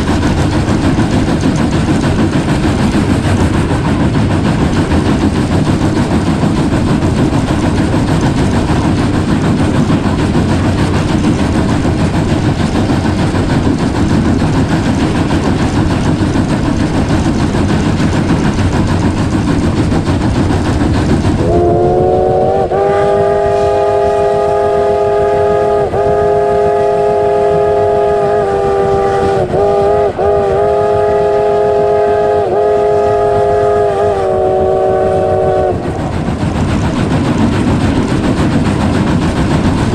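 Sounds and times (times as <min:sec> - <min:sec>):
train rumbling: 0:00.0 - 0:39.9
steam locomotive chime whistle: 0:21.4 - 0:35.8.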